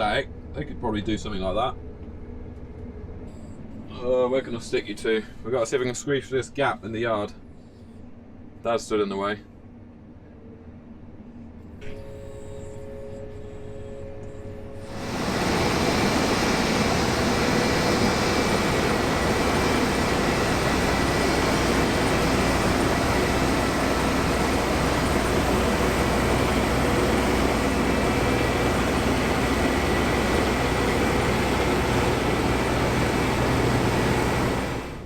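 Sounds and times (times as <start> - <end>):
combine harvester drone: 11.8 - 35.0.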